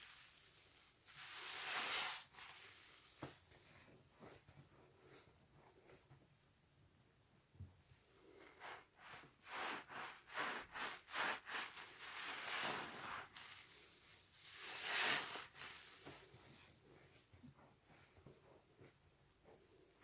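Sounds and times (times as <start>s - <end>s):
sponge squelching with suds: 0.1s - 3.2s, 8.6s - 16.3s.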